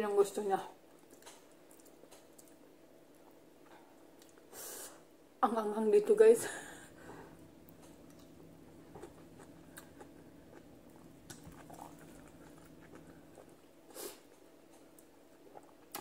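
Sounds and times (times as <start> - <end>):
person chewing food: 0.9 - 4.5, 7.7 - 16.0.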